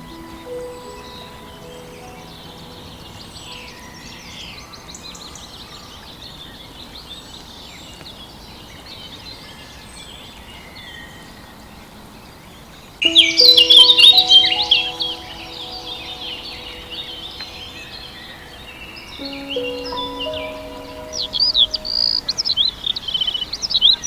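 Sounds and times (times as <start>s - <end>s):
loud sustained tones and chirping calls: 13.0s - 23.4s.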